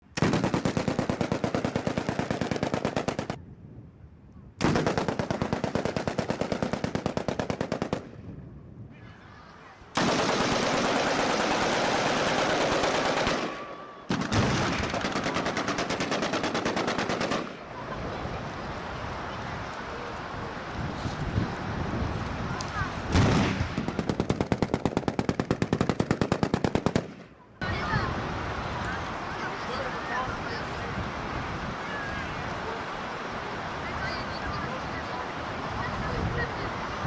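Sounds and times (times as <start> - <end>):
machine-gun fire: 0.2 - 3.4, 4.6 - 8.1, 10.0 - 17.6, 23.1 - 27.3.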